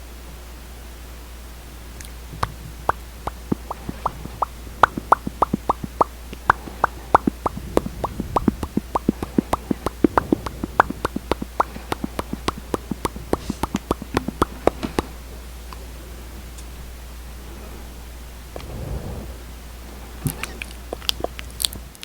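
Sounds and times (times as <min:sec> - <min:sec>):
wet lip smacking: 0:02.0 - 0:15.1, 0:20.4 - 0:21.8.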